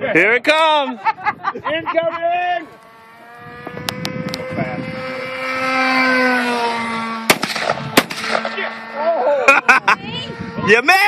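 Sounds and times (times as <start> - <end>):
model airplane engine whine: 1.9 - 11.0
sharp gunshots: 7.2 - 8.9.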